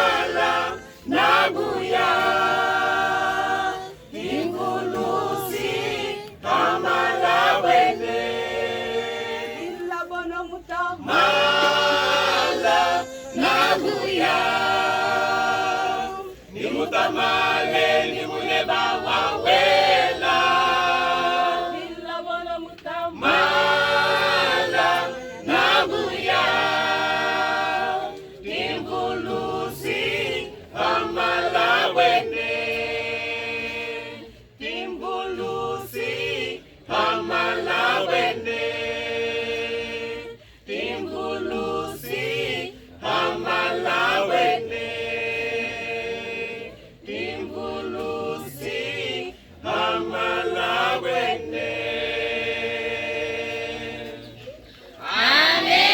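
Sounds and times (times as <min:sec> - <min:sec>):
choir singing a cappella: 0:00.0 - 0:55.9
singers breathing: 0:40.4 - 0:40.7.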